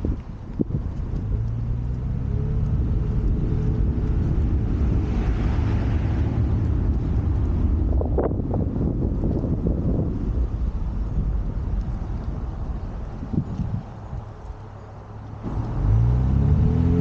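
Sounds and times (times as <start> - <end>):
road and wind rumble: 0.0 - 17.0
car engine running: 15.2 - 17.0.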